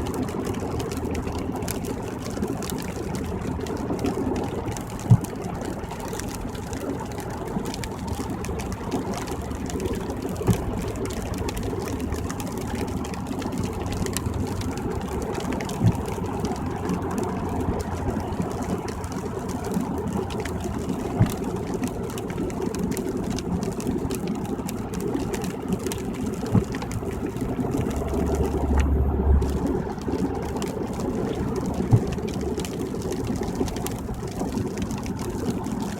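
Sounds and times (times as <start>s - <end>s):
car road and engine noise: 0.0s - 35.9s
low rumble: 26.6s - 34.4s.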